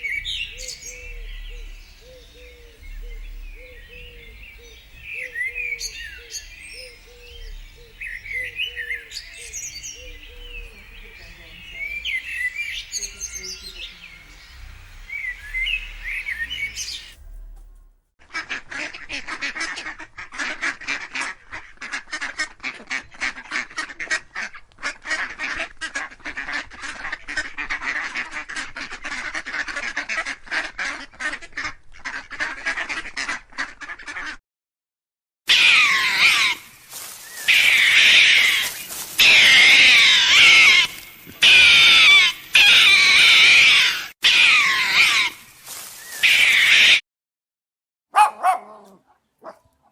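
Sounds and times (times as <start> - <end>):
bird calls gliding in pitch: 0.0 - 17.2
rapid chatter of many birds: 0.0 - 17.2, 35.6 - 47.0
birds chirping: 0.0 - 17.6, 35.5 - 47.0, 48.1 - 49.9.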